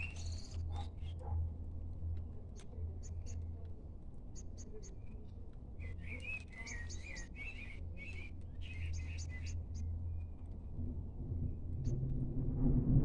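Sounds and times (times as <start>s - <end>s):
bird warbling song: 0.0s - 1.3s, 2.9s - 3.6s, 4.3s - 10.6s
birds chirping: 0.0s - 1.5s, 2.2s - 10.7s
low steady rumble: 7.7s - 13.0s.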